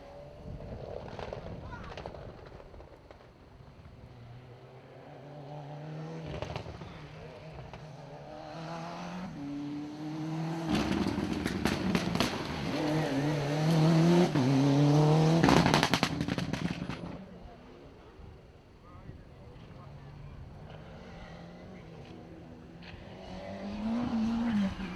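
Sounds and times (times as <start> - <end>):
rally car engine revving: 0.0 - 17.7, 19.4 - 24.9
exhaust pops and cracks: 10.7 - 12.8.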